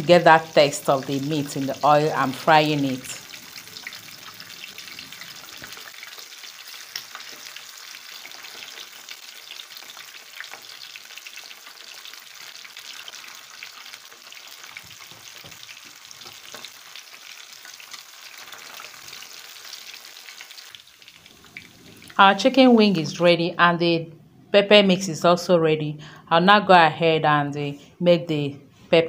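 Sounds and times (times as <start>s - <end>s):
chicken wings frying in oil: 0.0s - 22.5s.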